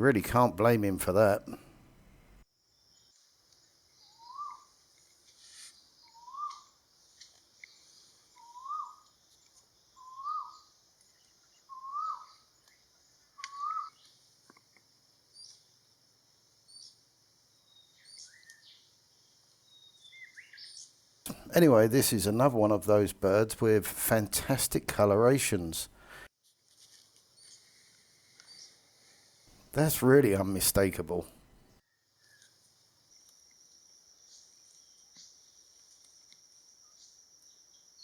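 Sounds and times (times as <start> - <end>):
bird whistled calls: 6.1 - 6.7, 8.4 - 9.0, 10.0 - 10.7, 11.7 - 12.4, 13.4 - 14.0.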